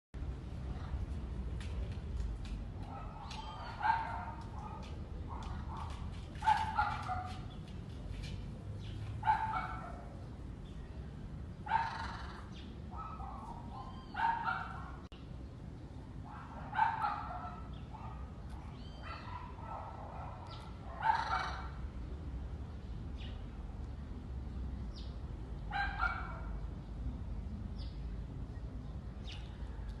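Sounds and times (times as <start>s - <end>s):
animal barks: 2.8s - 7.5s, 9.2s - 10.1s, 11.6s - 15.1s, 16.3s - 21.8s, 25.7s - 26.6s.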